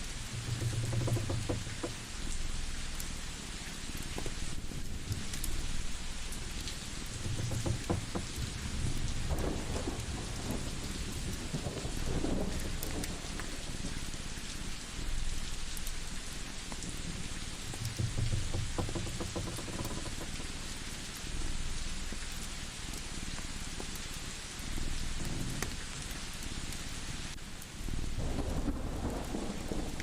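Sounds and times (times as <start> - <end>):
faint crackles: 0.0 - 27.4
steady rain: 0.0 - 30.0
thunder rumbles: 4.6 - 15.4, 28.0 - 30.0.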